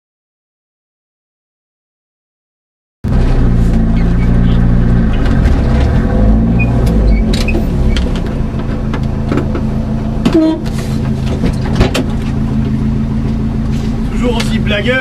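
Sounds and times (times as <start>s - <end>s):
car engine idling: 3.1s - 15.0s.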